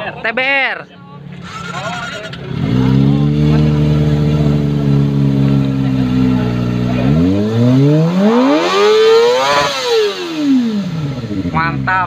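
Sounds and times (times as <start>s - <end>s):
motorcycle engine revving: 1.4s - 12.0s.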